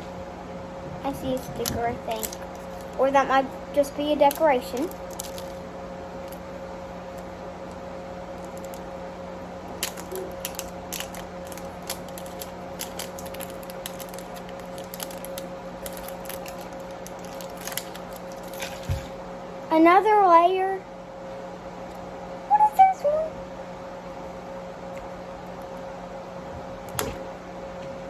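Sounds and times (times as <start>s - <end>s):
steady low hum: 0.0s - 28.0s
plastic wrapping crinkling: 1.1s - 19.2s.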